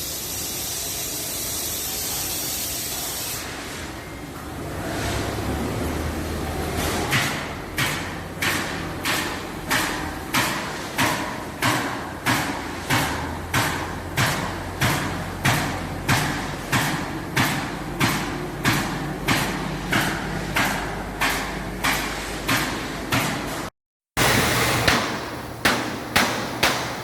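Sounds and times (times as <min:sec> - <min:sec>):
pneumatic nail gun firing into wood: 0:24.2 - 0:27.0.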